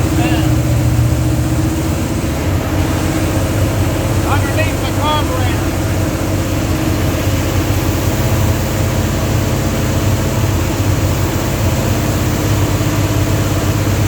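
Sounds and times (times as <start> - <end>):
car engine running steadily: 0.0 - 14.0.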